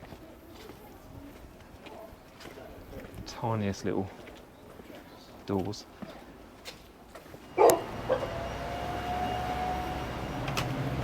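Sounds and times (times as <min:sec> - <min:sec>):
dog barking: 0:07.5 - 0:09.1
car engine humming: 0:07.5 - 0:11.0.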